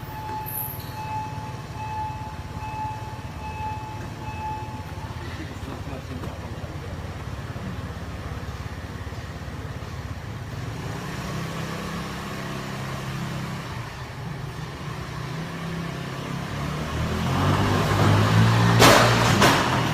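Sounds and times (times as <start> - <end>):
motorcycle engine running: 1.4 - 15.2.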